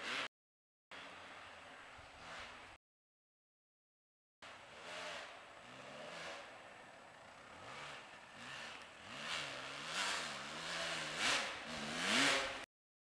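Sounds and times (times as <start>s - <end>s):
dirt bike engine revving: 4.6s - 12.7s.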